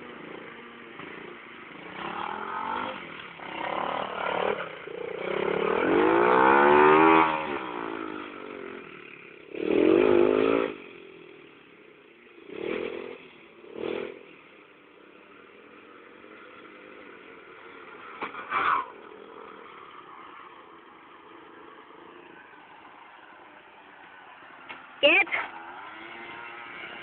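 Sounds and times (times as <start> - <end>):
small motorbike engine revving: 0.0 - 27.0.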